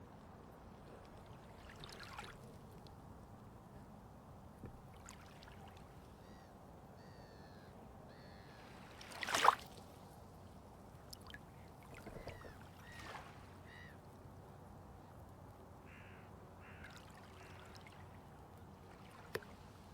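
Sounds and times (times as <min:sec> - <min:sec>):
water lapping and splashing: 0:00.2 - 0:02.9, 0:04.8 - 0:06.1, 0:08.6 - 0:13.9, 0:16.6 - 0:19.9.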